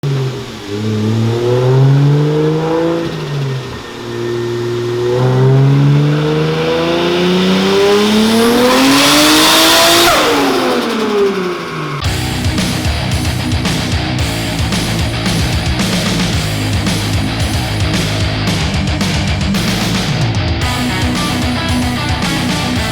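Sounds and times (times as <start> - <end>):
turbocharged car engine revving: 0.0 - 22.9
turbo rushing hiss: 11.2 - 18.7.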